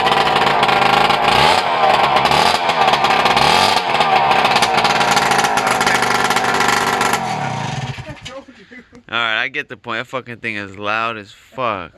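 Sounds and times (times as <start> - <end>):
motorbike engine revving: 0.0 - 8.4.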